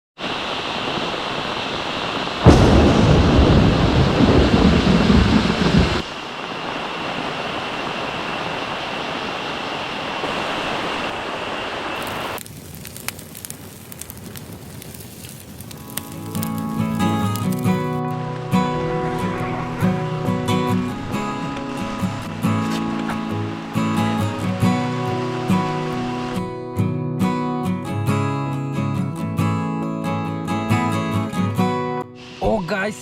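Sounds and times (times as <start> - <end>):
sharp ticks of rain: 0.2 - 26.4
heavy rain falling: 0.2 - 26.6
deep thunder rumble: 2.4 - 6.2, 15.7 - 26.7.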